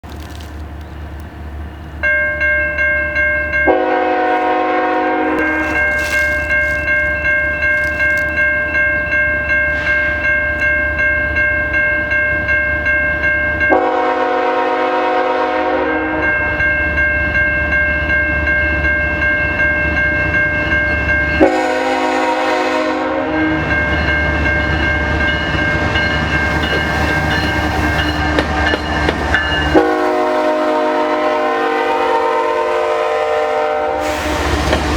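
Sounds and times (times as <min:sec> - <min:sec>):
diesel locomotives rumbling: 0:00.0 - 0:34.9
crossing bell ringing: 0:01.6 - 0:33.8
train air horn blasts: 0:03.7 - 0:06.5, 0:13.7 - 0:16.3, 0:21.4 - 0:23.8, 0:29.6 - 0:34.9.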